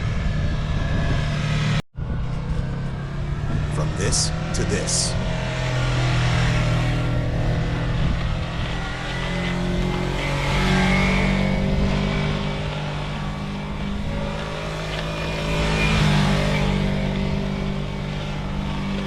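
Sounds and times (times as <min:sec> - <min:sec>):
motorcycle engine running: 0:05.2 - 0:19.0.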